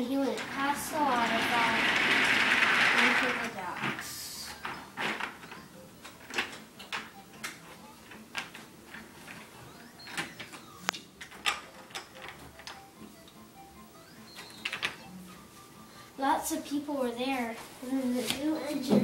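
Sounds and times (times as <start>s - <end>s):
toy trains clicking on track: 0.1s - 4.1s.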